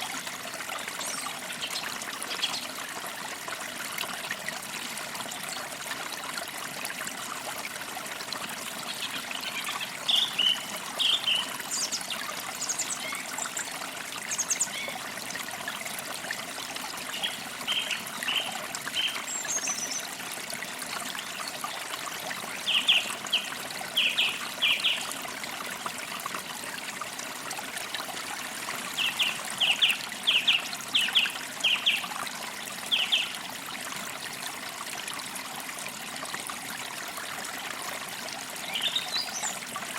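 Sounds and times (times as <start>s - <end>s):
creek water trickling: 0.0s - 39.9s.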